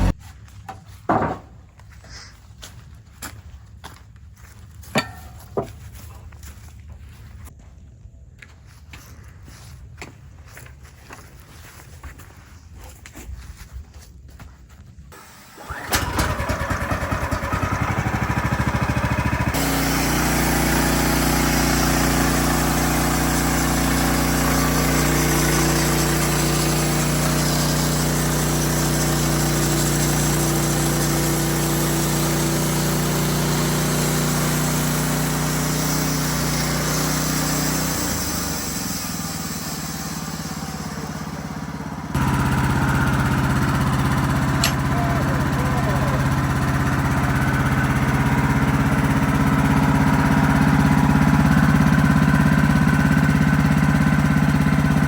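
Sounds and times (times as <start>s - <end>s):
sawmill engine running: 0.0s - 1.6s, 5.0s - 6.0s, 15.1s - 55.0s.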